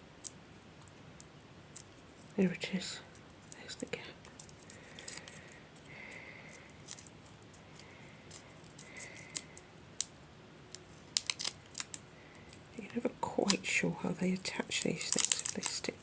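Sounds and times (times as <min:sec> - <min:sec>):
paper stickers crackling and clicking: 0:03.4 - 0:07.1, 0:07.7 - 0:10.1, 0:10.7 - 0:13.7, 0:14.5 - 0:16.0.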